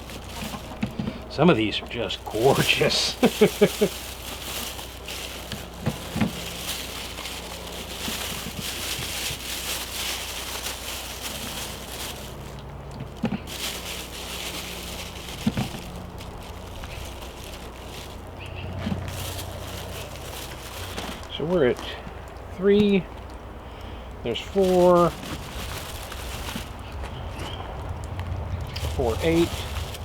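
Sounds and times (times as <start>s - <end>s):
bag rustling: 0.0s - 21.9s, 24.3s - 27.8s, 28.7s - 30.0s
potatoes knocking into bag: 2.3s - 21.3s.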